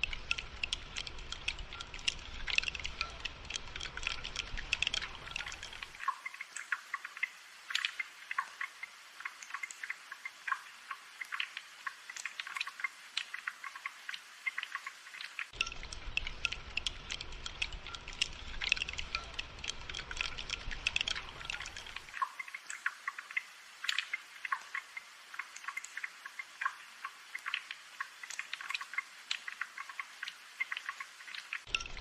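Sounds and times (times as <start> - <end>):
raindrops pattering: 0.0 - 32.0.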